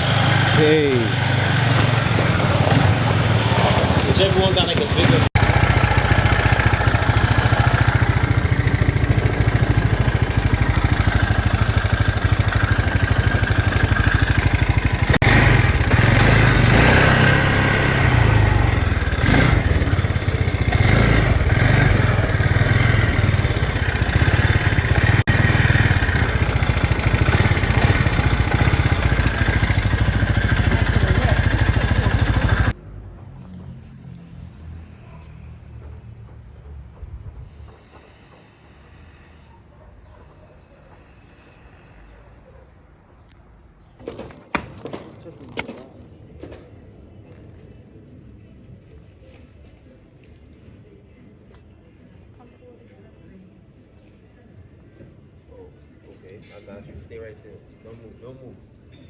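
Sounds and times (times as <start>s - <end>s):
quad bike engine running: 0.0s - 32.8s.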